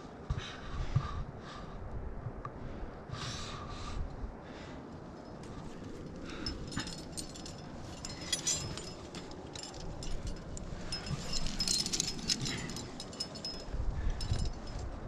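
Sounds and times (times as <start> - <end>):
metal climbing gear clinking: 5.0 - 15.0.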